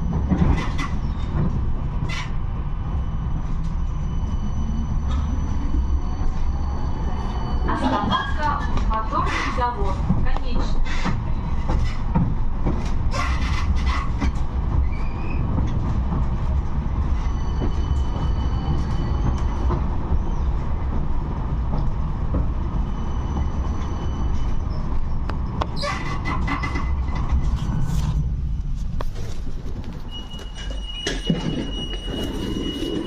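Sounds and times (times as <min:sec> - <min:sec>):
tram rumbling on rails: 0:00.0 - 0:33.0
high wheel squeal: 0:02.0 - 0:09.7, 0:17.0 - 0:20.6, 0:22.8 - 0:25.1, 0:30.0 - 0:33.0.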